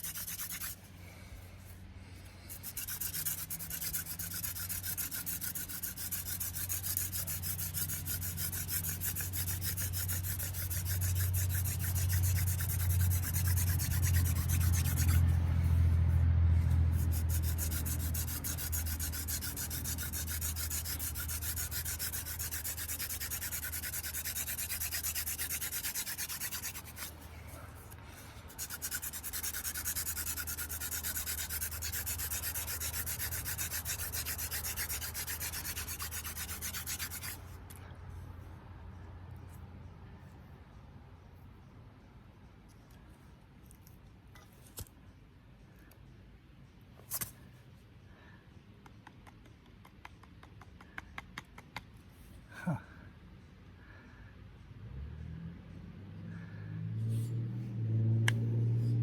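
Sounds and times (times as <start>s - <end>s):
hand drill rubbing on hearth: 0.0s - 0.9s, 2.5s - 15.4s, 16.9s - 27.2s, 28.5s - 37.4s.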